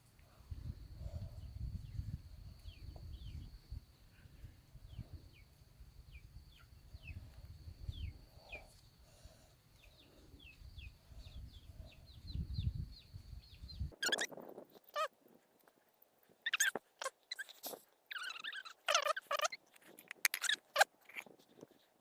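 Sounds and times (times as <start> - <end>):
birds chirping: 9.7 - 14.3, 16.5 - 21.2.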